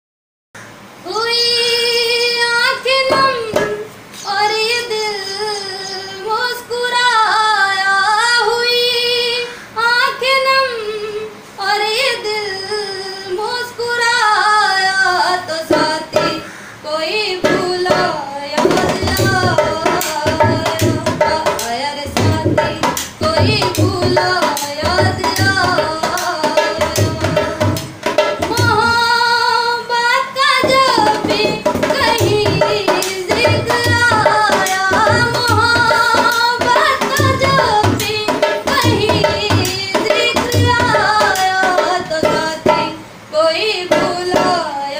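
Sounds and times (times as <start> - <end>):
woman singing: 1.0 - 44.9
dholak drum beat: 3.0 - 3.9, 15.5 - 16.5, 17.4 - 29.2, 30.4 - 43.2, 43.8 - 44.8.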